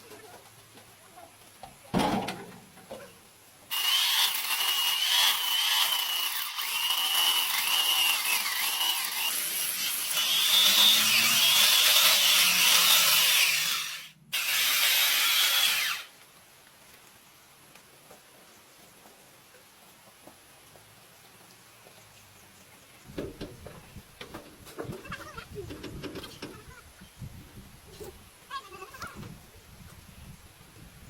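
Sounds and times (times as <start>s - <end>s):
power tool whining: 3.7s - 16.1s.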